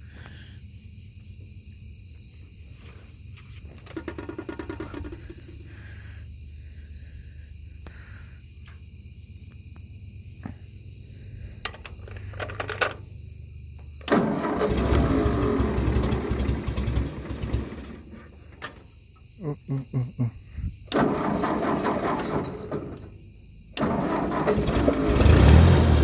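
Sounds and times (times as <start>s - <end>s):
tractor engine idling: 3.8s - 6.1s, 14.0s - 18.9s, 20.9s - 23.2s, 23.8s - 26.0s.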